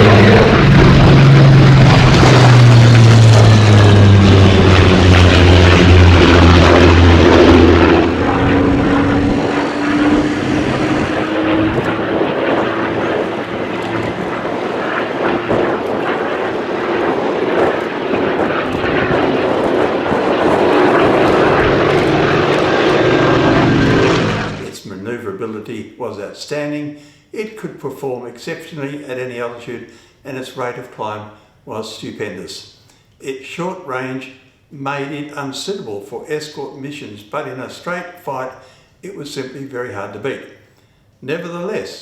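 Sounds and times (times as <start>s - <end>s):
propeller plane engine drone: 0.0s - 24.7s.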